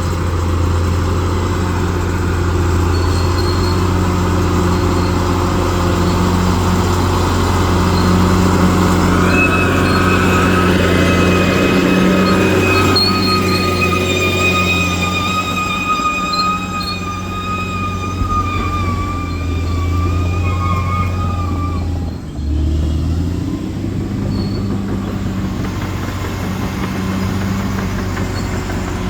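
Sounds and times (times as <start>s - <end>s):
bulldozer engine running: 0.0s - 29.0s
high-pitched machine squeal: 0.6s - 22.8s, 24.2s - 29.0s.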